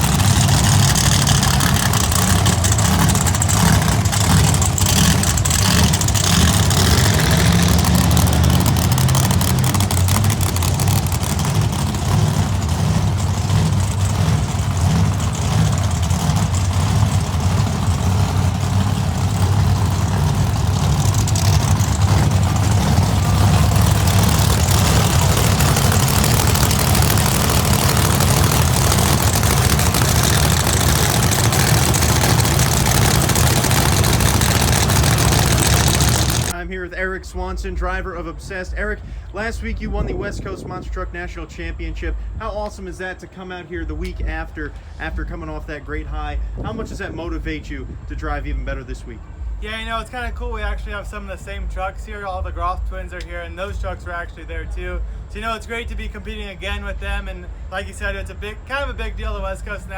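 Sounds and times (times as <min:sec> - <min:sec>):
monster truck engine running: 0:00.0 - 0:36.7.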